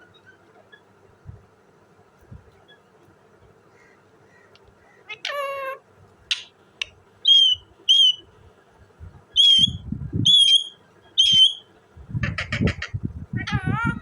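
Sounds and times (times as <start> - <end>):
parakeet whistled calls: 7.2 - 8.3, 9.4 - 11.7.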